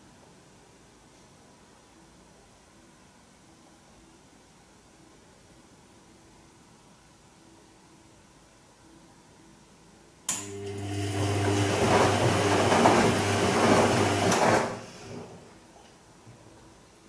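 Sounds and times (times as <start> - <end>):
washing machine click: 10.3 - 15.4
washing machine humming and rushing: 10.3 - 15.6.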